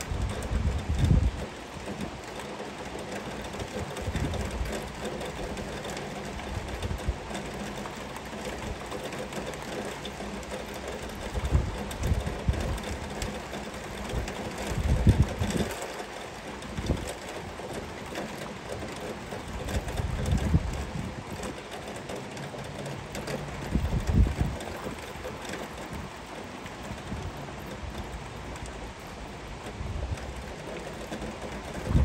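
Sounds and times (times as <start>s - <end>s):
heavy rain: 0.0s - 32.0s
low gusty rumbles: 23.6s - 25.0s, 31.6s - 32.0s.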